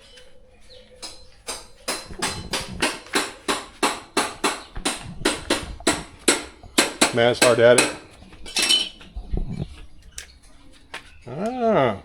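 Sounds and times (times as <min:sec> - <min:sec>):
hand tool knocking: 0:01.0 - 0:08.8.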